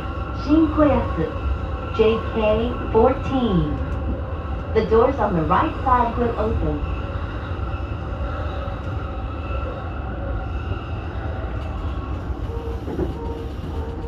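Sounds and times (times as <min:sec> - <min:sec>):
faint whining tones: 0:00.0 - 0:14.0
train low rumble: 0:00.0 - 0:14.0.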